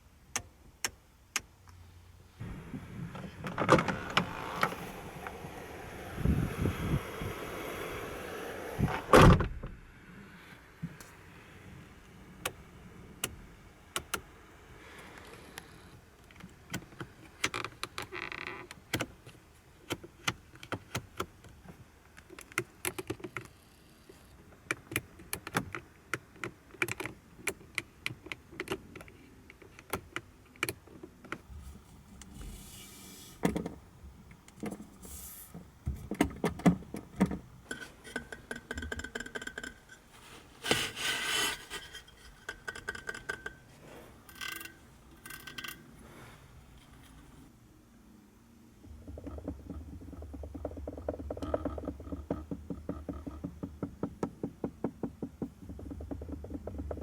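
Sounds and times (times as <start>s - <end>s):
brief rubbing: 31.5s - 33.5s, 34.8s - 35.6s, 40.1s - 42.5s
rattling: 31.5s - 47.5s.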